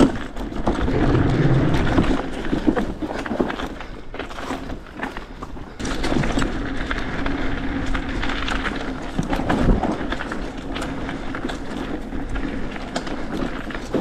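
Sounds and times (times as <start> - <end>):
bike rattling and knocking: 0.0 - 14.0
bike tyres on dirt trail: 0.0 - 14.0
wind on microphone: 0.7 - 3.0.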